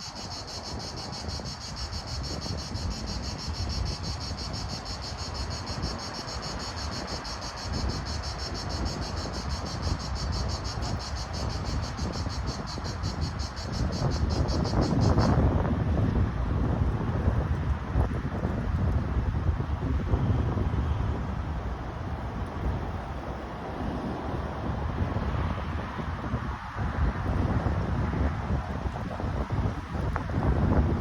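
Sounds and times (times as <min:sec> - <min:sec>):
insect chirping: 0:00.0 - 0:15.4
wind rumbling on microphone: 0:00.0 - 0:31.0.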